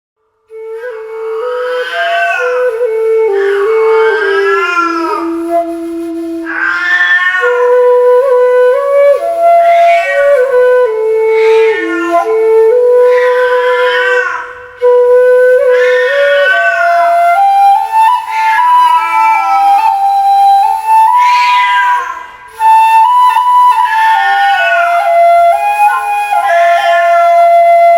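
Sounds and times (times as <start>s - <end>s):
bamboo flute melody: 0.5s - 27.9s
cat meowing: 1.5s - 2.8s, 3.4s - 5.4s, 6.5s - 7.7s, 9.6s - 10.4s, 11.3s - 12.4s, 13.1s - 14.6s, 15.7s - 17.2s, 18.2s - 19.9s, 21.2s - 22.3s, 23.8s - 25.0s, 26.4s - 27.5s.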